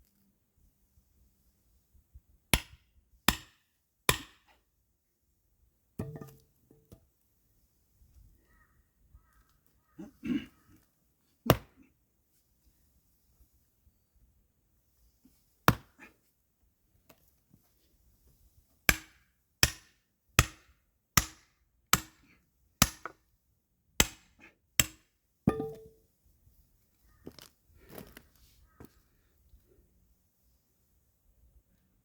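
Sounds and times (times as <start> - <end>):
axe chopping firewood: 2.6 - 4.6, 6.0 - 6.5, 11.5 - 11.8, 15.7 - 16.0, 18.9 - 23.2, 24.0 - 26.0.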